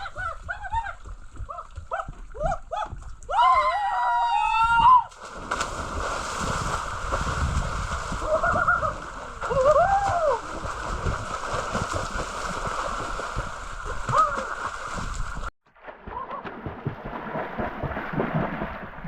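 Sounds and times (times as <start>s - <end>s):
water splashing and sloshing: 0.0s - 3.4s, 5.1s - 19.0s.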